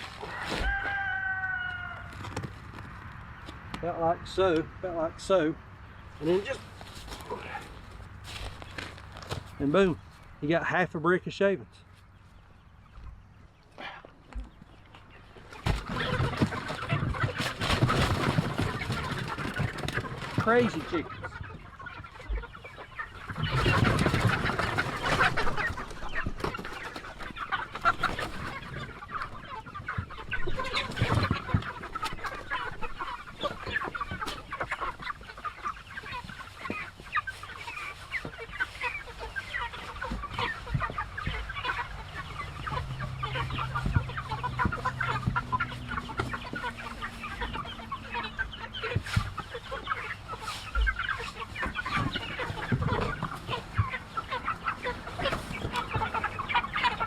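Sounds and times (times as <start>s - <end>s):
hens clucking and chirping: 0.0s - 57.0s
rustling: 6.6s - 10.3s.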